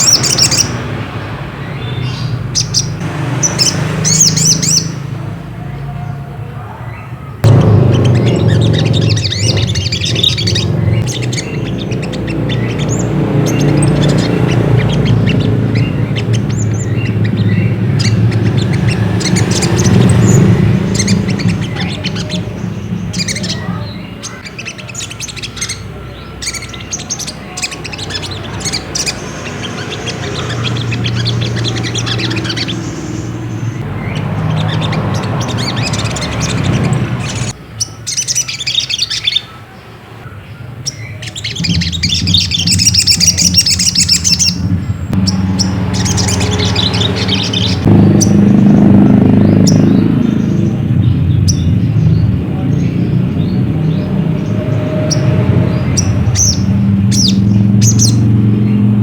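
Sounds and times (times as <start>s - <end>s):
bird chirping high calls: 0.0s - 59.0s
steady low hum: 7.4s - 24.2s.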